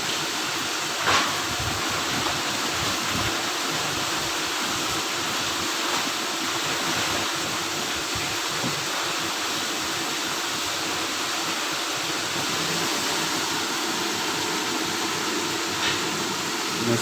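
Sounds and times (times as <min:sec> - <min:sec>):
industrial machine hissing: 0:15.1 - 0:17.0.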